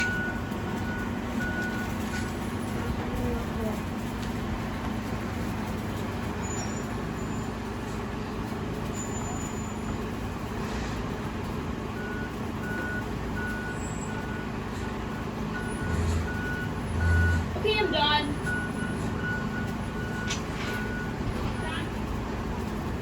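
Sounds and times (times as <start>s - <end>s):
reversing alarm beeping: 0.0s - 2.0s, 12.0s - 22.0s
truck engine running: 0.0s - 23.0s.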